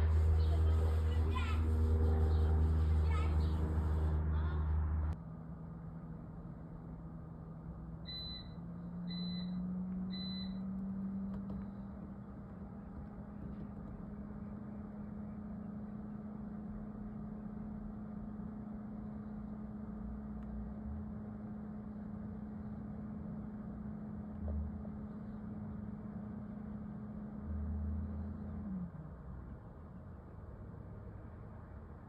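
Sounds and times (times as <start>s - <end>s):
steady low hum: 0.0s - 32.0s
short electronic beeps: 8.1s - 10.8s.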